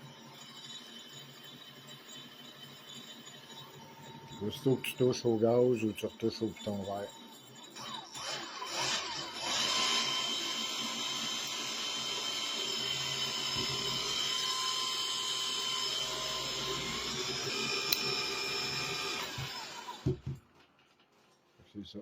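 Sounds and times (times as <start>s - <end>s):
electric outboard motor whining: 7.8s - 20.2s.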